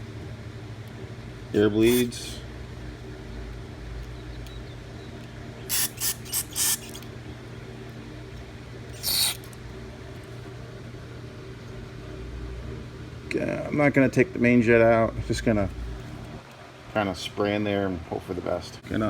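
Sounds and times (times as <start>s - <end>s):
hissing spray bursts: 5.7s - 7.0s.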